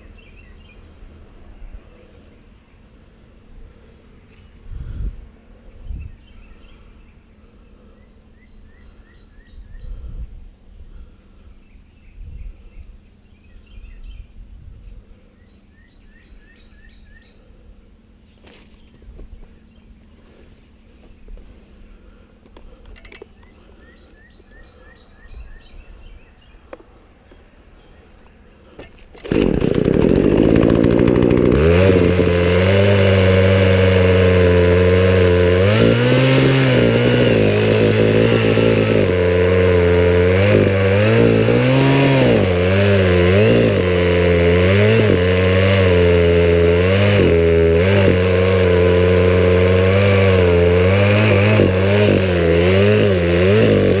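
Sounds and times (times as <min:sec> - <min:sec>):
chainsaw starting and revving: 0:28.8 - 0:54.0.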